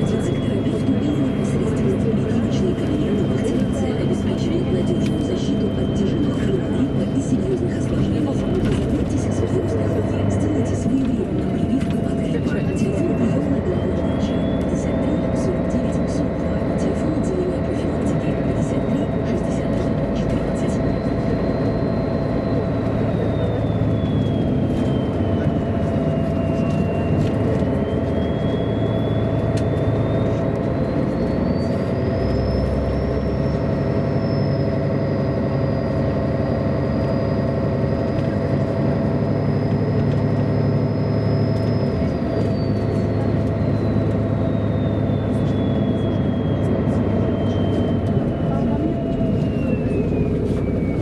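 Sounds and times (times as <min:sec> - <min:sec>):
diesel bus engine humming: 0:00.0 - 0:51.0
high drivetrain whine: 0:00.0 - 0:51.0.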